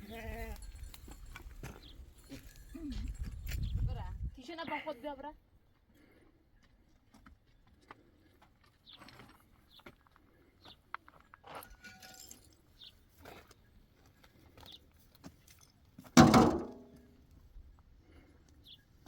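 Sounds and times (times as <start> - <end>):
knocks and rattles of handling: 15.5 - 17.0
loud ringing knock: 16.2 - 16.9.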